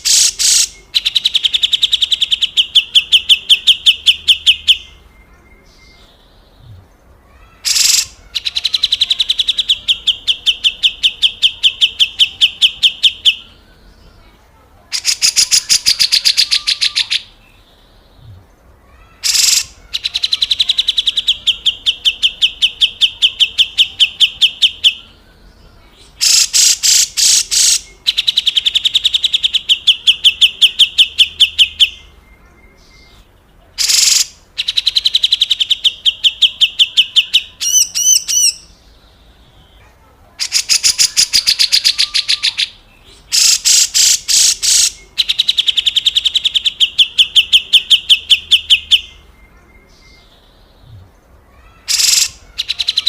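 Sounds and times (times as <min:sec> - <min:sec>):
bulbul harsh rattling call: 0:00.0 - 0:03.8, 0:07.4 - 0:10.9, 0:14.9 - 0:17.3, 0:19.0 - 0:22.2, 0:26.0 - 0:29.9, 0:33.8 - 0:35.8, 0:40.4 - 0:46.8, 0:51.7 - 0:53.0
warbling bird whistle: 0:51.9 - 0:52.8.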